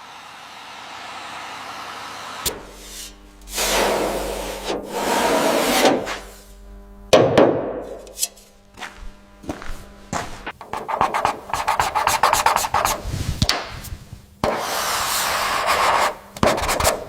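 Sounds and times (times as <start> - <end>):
rubbing or scraping: 2.6 - 6.6.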